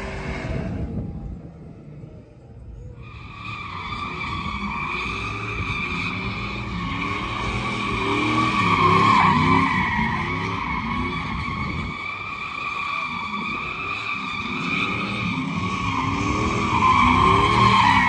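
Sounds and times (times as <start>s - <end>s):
engine at high revs: 4.4s - 11.3s, 13.5s - 18.0s.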